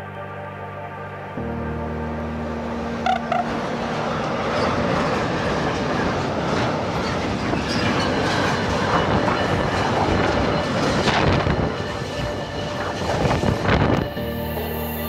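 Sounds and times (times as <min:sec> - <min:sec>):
wheels clattering over rail joints: 0:03.4 - 0:13.9.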